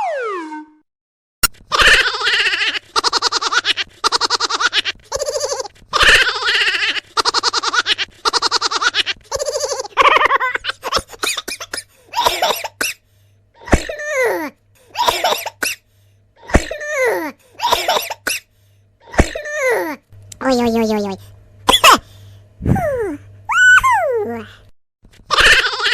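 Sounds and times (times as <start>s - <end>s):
high-pitched cartoon laugh: 1.7s - 12.5s, 25.3s - 25.9s.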